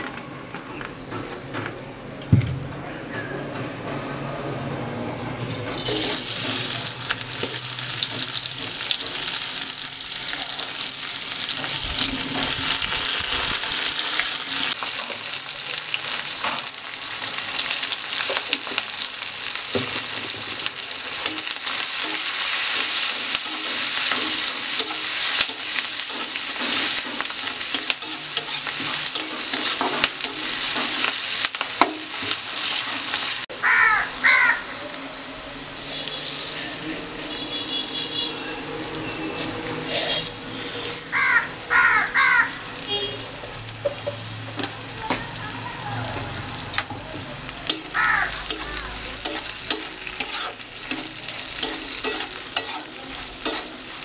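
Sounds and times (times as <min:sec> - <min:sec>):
onion and garlic sizzling in oil: 0:05.7 - 0:54.0
stirring scrapes and clinks: 0:21.2 - 0:31.1, 0:47.7 - 0:54.0.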